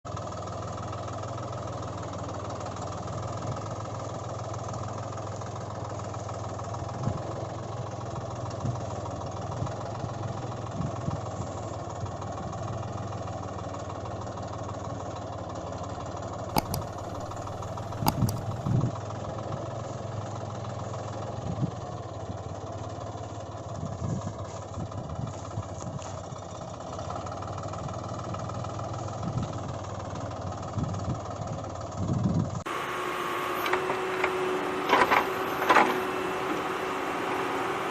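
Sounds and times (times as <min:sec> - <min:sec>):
engine hum: 0:00.1 - 0:37.9
sharp clicks: 0:16.5 - 0:18.6.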